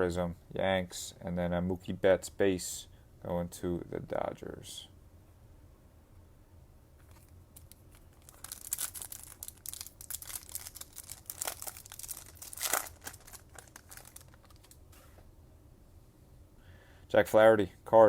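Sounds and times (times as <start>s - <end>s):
foil wrapper tearing and crinkling: 7.6s - 14.8s.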